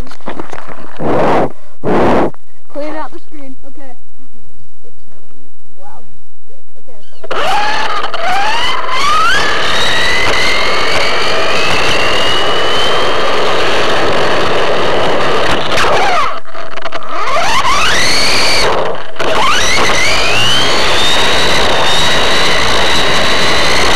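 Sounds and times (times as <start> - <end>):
electric motor whining: 7.2 - 23.9.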